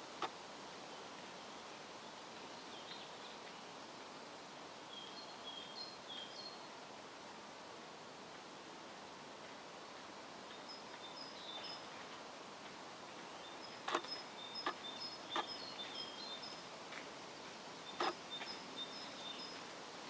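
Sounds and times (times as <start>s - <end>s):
outdoor background noise: 0.0s - 20.0s
small bird chirping: 13.2s - 16.7s, 17.8s - 19.6s.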